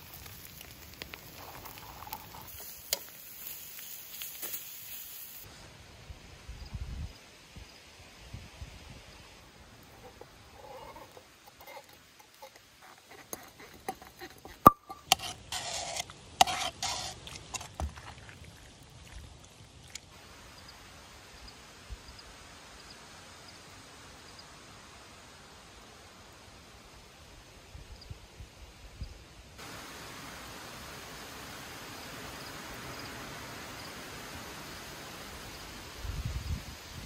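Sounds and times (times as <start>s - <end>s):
faint steady hiss: 0.0s - 37.0s
metal pot scraping frying pan: 10.0s - 18.0s.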